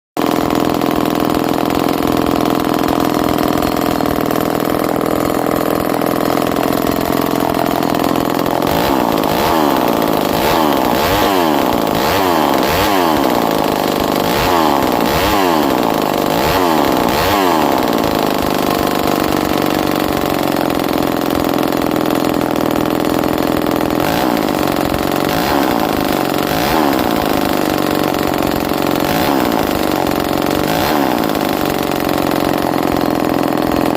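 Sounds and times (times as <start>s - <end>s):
chainsaw engine revving: 0.2s - 33.9s.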